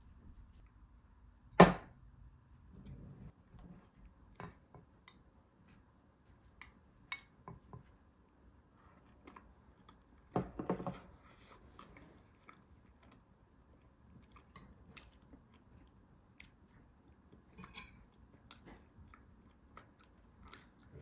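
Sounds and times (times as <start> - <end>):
utensils clinking against dishes: 17.6 - 18.0.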